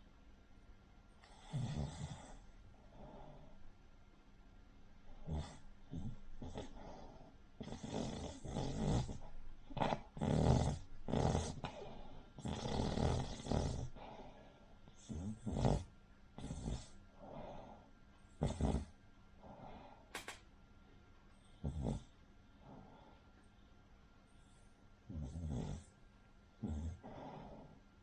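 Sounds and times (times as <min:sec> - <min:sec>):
dog snoring: 0:01.2 - 0:03.5, 0:05.1 - 0:19.9, 0:21.4 - 0:23.2, 0:24.4 - 0:26.0, 0:26.6 - 0:27.8.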